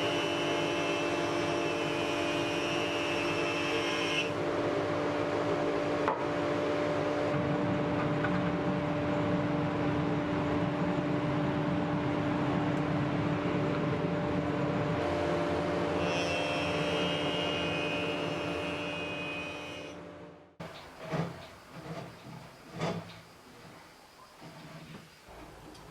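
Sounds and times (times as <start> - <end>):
power tool motor running: 0.0 - 4.4, 15.8 - 20.0.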